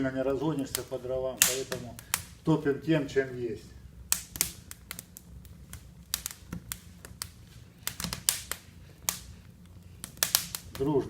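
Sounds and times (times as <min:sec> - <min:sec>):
firewood crackling and popping: 0:00.0 - 0:11.0.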